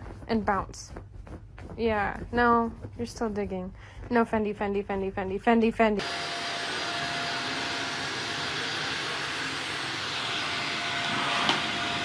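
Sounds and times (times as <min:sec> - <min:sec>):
vacuum cleaner motor running: 0:06.0 - 0:12.0.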